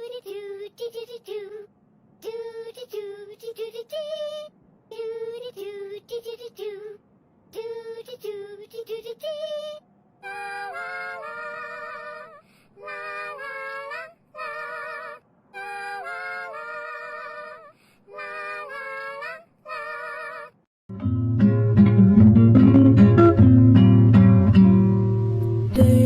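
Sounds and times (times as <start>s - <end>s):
high wordless singing voice: 0.0s - 20.7s, 25.8s - 26.0s
music with strummed guitar: 20.9s - 26.0s.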